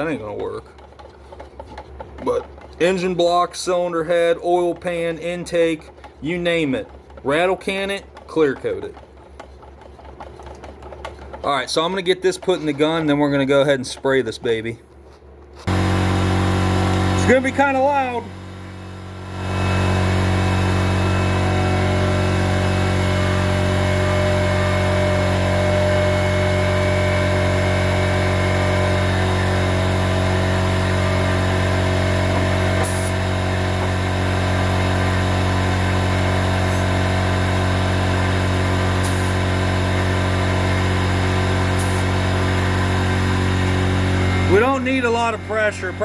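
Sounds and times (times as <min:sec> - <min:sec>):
air compressor running: 0:00.0 - 0:13.5, 0:15.2 - 0:46.0
air hissing: 0:30.0 - 0:33.5, 0:38.9 - 0:39.5, 0:41.6 - 0:42.3.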